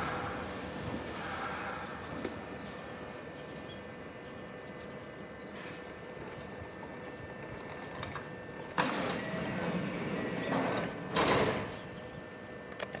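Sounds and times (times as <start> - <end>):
train doors opening with air rush: 0.0 - 3.9, 4.6 - 6.6, 7.3 - 11.9.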